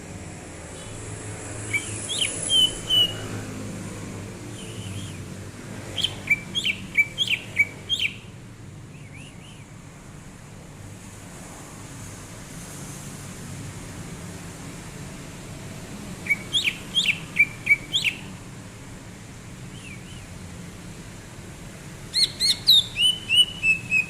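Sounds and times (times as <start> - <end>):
bird singing whistled notes: 1.6 - 3.2, 4.5 - 5.2, 5.9 - 8.3, 8.9 - 9.7, 16.2 - 18.3, 19.7 - 20.3, 22.1 - 24.0.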